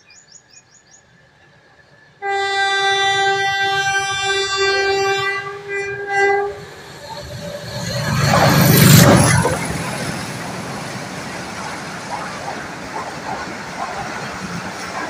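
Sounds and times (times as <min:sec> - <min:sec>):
passenger coaches rumbling by: 0:01.1 - 0:15.0
locomotive rushing past: 0:01.8 - 0:15.0
locomotive horn blast: 0:02.2 - 0:09.4.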